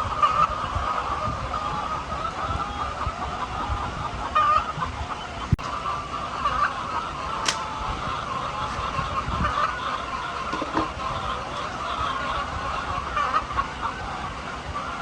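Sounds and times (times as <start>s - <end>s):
hens clucking: 0.0s - 15.0s
sharp click: 7.4s - 7.7s.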